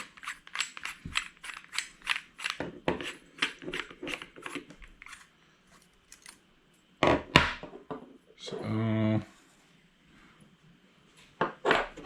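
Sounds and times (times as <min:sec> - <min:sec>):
metal parts clicking and scraping: 0:00.0 - 0:06.4.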